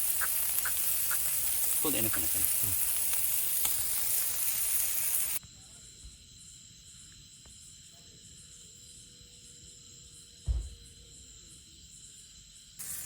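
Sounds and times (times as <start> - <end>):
fish sizzling over fire: 0.0 - 5.4, 12.8 - 13.0
shrill insect calls: 0.0 - 13.0
low thump: 10.4 - 10.9.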